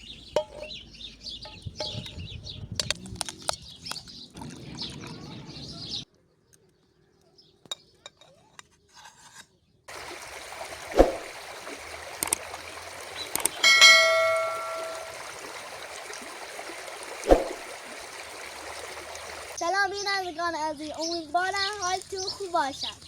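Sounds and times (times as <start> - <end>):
running water rushing: 9.9 - 19.6
metallic ring: 13.6 - 15.3.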